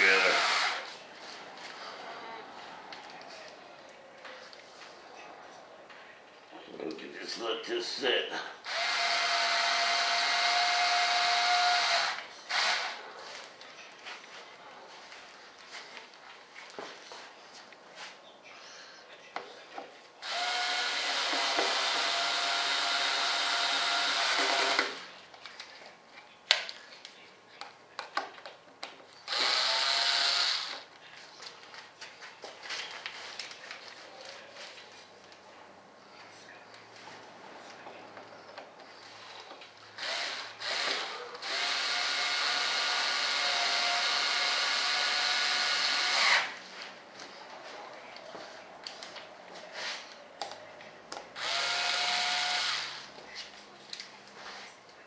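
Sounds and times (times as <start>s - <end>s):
handheld electric power tool: 0.0s - 0.9s, 8.6s - 13.0s, 20.2s - 25.1s, 29.3s - 30.8s, 40.0s - 46.6s, 51.4s - 53.0s.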